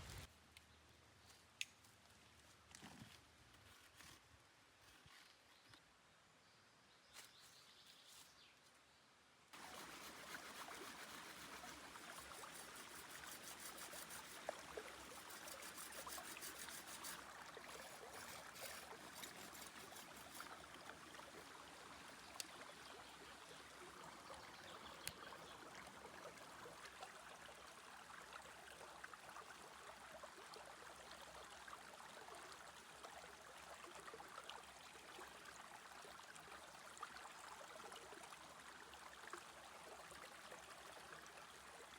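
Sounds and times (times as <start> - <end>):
faint trickling water: 9.6 - 41.9.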